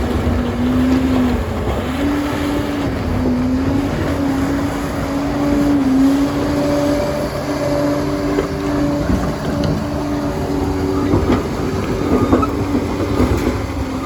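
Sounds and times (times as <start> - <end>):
bulldozer engine under load: 0.0 - 14.0
engine whine: 0.0 - 14.0.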